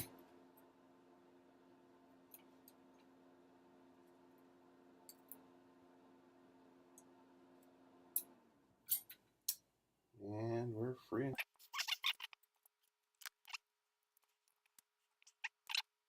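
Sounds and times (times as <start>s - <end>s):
low steady hum: 0.0s - 11.5s.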